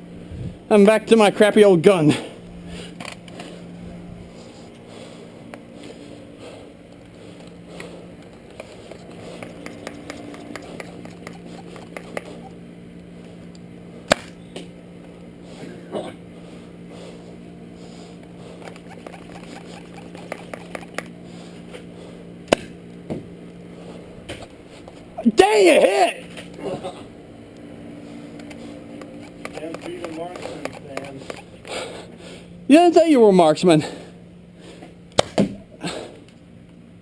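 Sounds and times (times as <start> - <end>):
steady low hum: 0.0 - 37.0
toy blasters clicking and knocking: 8.3 - 12.4, 18.6 - 21.1, 29.0 - 31.5
sharp crack: 14.1 - 14.4.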